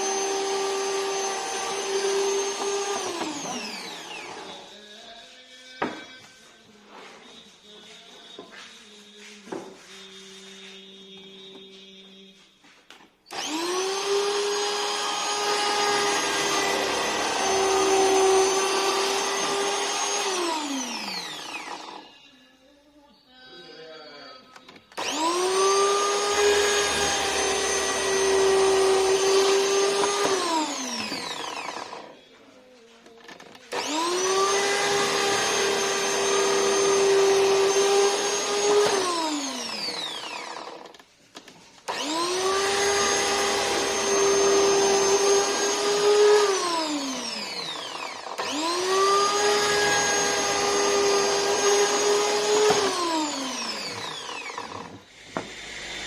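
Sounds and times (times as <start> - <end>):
electric motor whining: 0.0 - 4.8, 13.3 - 22.2, 24.9 - 32.2, 33.7 - 41.0, 41.9 - 56.0.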